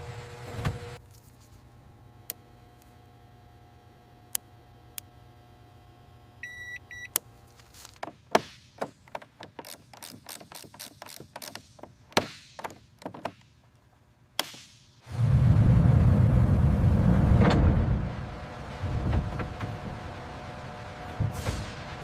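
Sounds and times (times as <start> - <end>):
short electronic beeps: 6.4 - 7.1.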